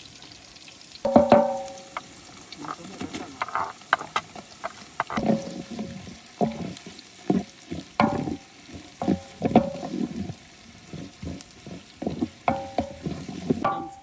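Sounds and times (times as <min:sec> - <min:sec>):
knocks against metal pot: 0:01.1 - 0:02.1, 0:08.0 - 0:10.2, 0:12.0 - 0:14.0
utensil scraping metal pot: 0:01.1 - 0:14.0.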